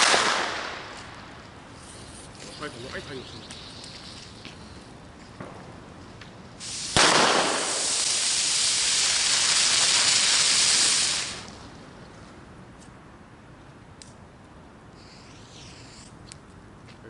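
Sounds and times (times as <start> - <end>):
firework crack: 0.0 - 4.7, 6.6 - 11.8
hissing spray: 6.6 - 11.5
firework hissing: 6.6 - 11.6, 15.0 - 16.1.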